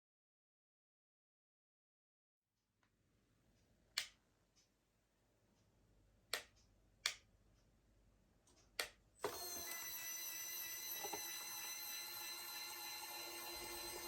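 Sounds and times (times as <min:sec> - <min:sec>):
small motor whining: 0:09.2 - 0:14.0.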